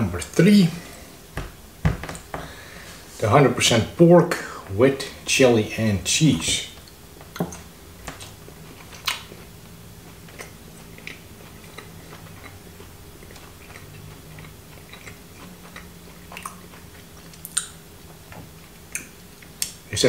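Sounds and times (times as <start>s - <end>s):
chewing clicks: 10.1s - 12.6s, 13.2s - 19.8s.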